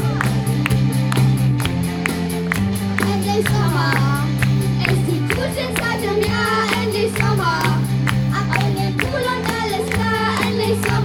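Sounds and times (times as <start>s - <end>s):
held bass notes: 0.0s - 11.0s
children singing: 8.4s - 11.0s.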